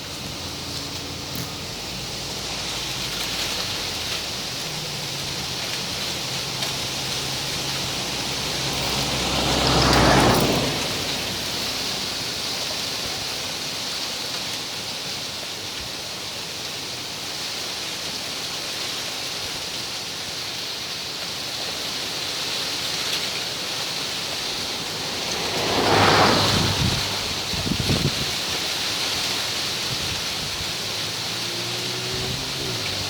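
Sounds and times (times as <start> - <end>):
wind rustling palm fronds: 0.0 - 33.0
wind gust buffeting microphone: 24.2 - 28.6.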